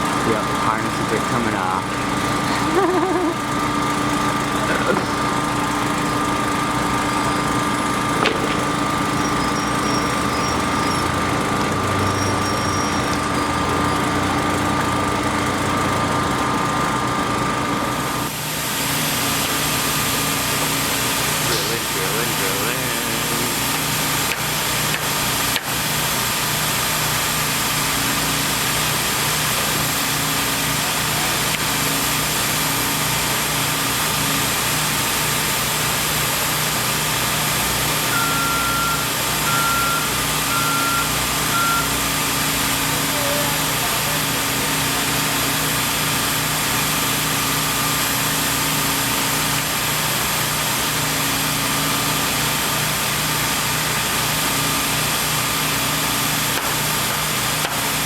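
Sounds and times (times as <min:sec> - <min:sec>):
heavy equipment engine running: 0:00.0 - 0:58.0
backup alarm beeping: 0:37.7 - 0:43.0.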